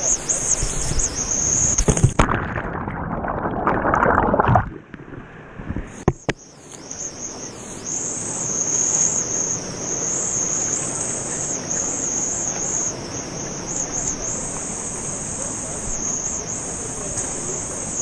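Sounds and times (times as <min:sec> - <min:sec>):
high-pitched insect chorus: 0:00.0 - 0:02.0, 0:06.3 - 0:18.0.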